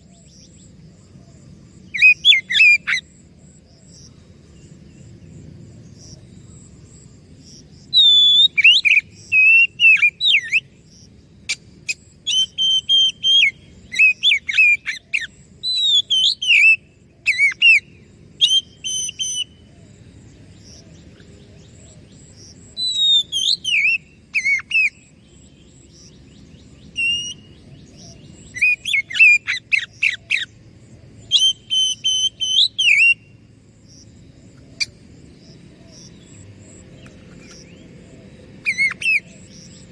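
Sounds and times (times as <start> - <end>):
bird singing whistles and trills: 1.7 - 3.2, 7.8 - 10.9, 11.5 - 20.0, 20.7 - 33.5, 38.6 - 39.9.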